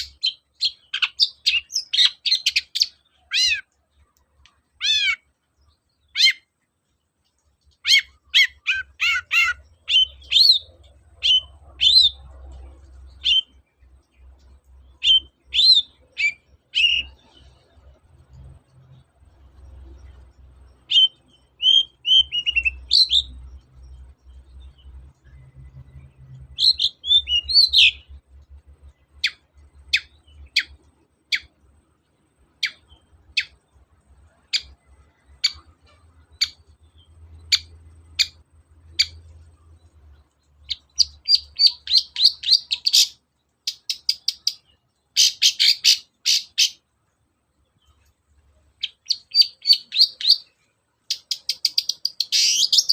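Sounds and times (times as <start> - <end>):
bird singing and chattering: 0.0 - 6.7, 7.6 - 19.0, 19.6 - 28.2, 29.2 - 31.5, 32.5 - 40.0, 40.6 - 46.8, 48.8 - 52.9.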